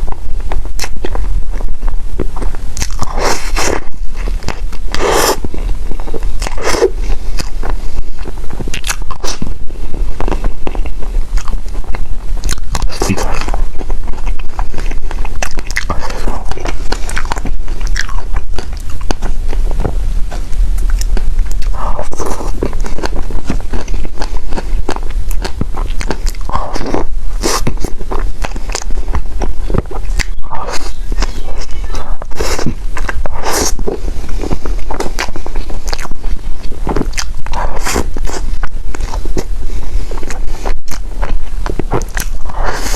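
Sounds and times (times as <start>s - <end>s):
chewing food with mouth clicks: 0.0s - 42.9s
steady low hum: 0.0s - 42.9s.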